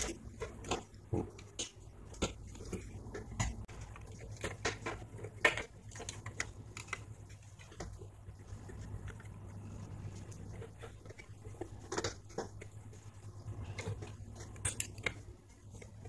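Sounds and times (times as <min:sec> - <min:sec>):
plastic radio parts clicking and clattering: 0:00.0 - 0:08.1
faint low hum: 0:00.0 - 0:16.0.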